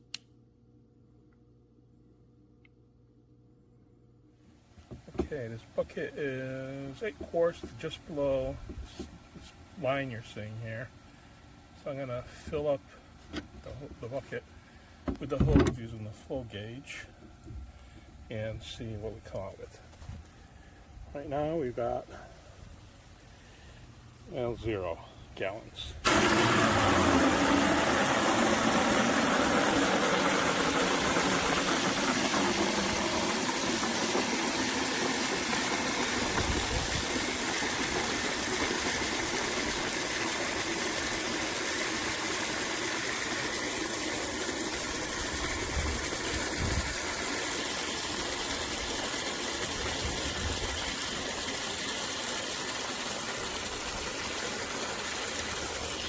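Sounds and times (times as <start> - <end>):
water pouring into bucket: 26.0 - 56.0.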